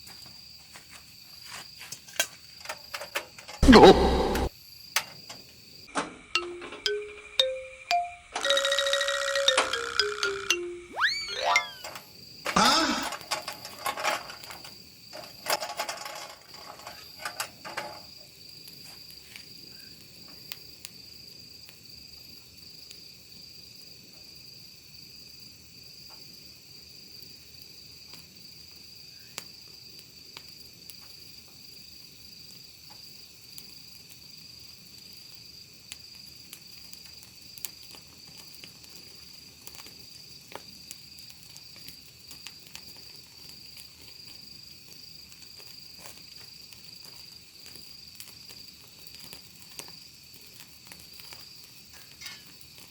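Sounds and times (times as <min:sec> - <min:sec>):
crickets chirring: 0:00.0 - 0:52.9
wood fire crackling: 0:11.8 - 0:23.0, 0:29.6 - 0:52.9.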